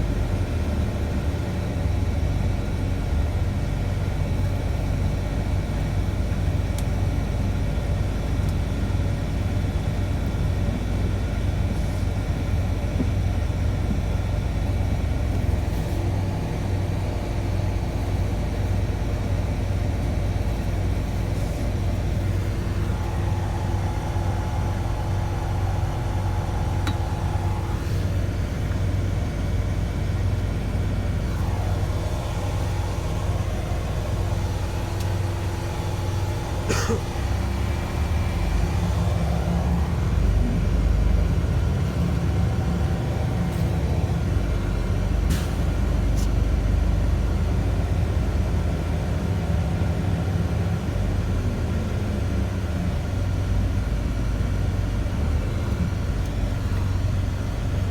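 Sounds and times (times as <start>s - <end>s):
bus engine rumble: 0.0s - 57.9s
steady high tone: 22.6s - 28.5s, 31.2s - 36.6s.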